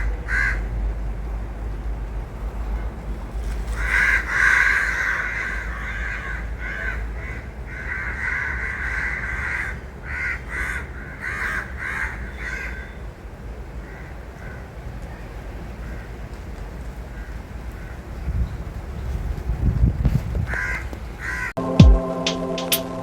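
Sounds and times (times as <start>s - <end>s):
crows cawing: 0.0s - 0.8s, 3.7s - 13.0s, 13.8s - 14.7s, 15.8s - 16.2s, 17.1s - 18.1s, 20.5s - 21.5s.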